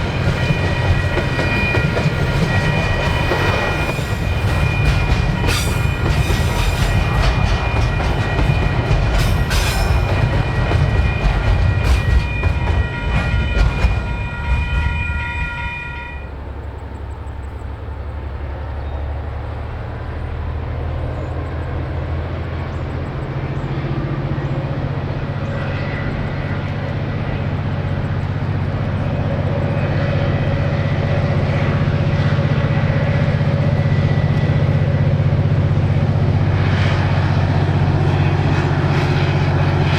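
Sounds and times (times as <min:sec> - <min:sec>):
train wheels clattering: 0:00.0 - 0:16.0.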